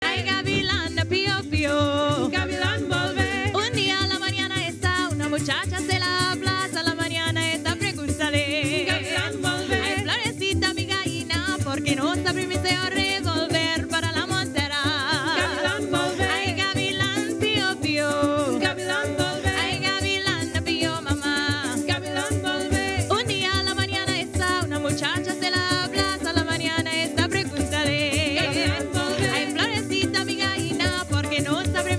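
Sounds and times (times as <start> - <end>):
band singing and playing: 0.0 - 1.0, 8.6 - 10.4, 15.1 - 23.3
maracas shaking: 0.0 - 31.9.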